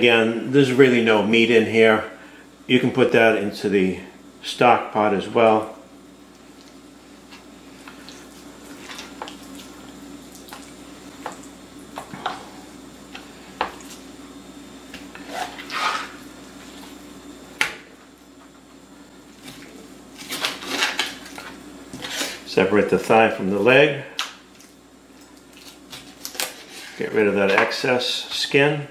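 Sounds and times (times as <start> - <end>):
steady low hum: 0.0 - 28.9
knife scraping cutting board: 14.9 - 16.2, 20.2 - 22.5, 25.6 - 27.7.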